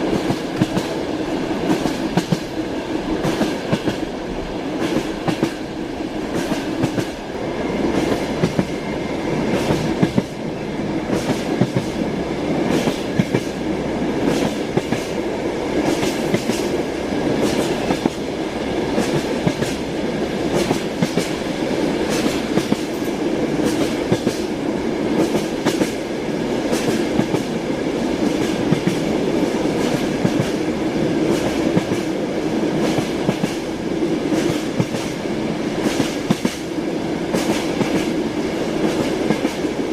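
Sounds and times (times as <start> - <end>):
train wheels clacking over rail joints: 0.0 - 1.0, 1.6 - 2.6, 3.2 - 4.1, 4.8 - 5.7, 6.3 - 7.3, 7.9 - 8.8, 9.5 - 10.4, 11.1 - 12.0, 12.6 - 13.6, 14.2 - 15.2, 15.8 - 16.8, 17.4 - 18.2, 18.9 - 24.5, 25.2 - 26.0, 26.6 - 27.6, 28.2 - 29.1, 29.7 - 32.2, 32.8 - 33.7, 34.3 - 35.2, 35.8 - 36.7, 37.3 - 38.2, 38.8 - 39.7
railway carriage rolling rumble: 0.0 - 39.9.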